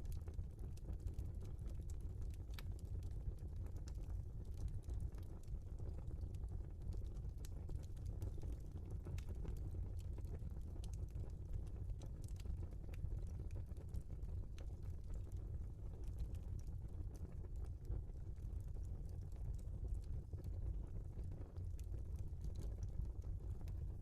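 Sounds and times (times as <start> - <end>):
fire crackling and popping: 0.0 - 24.0
low rumble of flames: 0.0 - 24.0.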